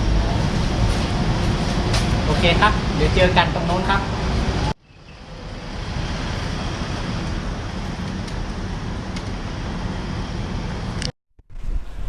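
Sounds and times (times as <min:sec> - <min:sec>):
road noise: 0:00.0 - 0:11.1.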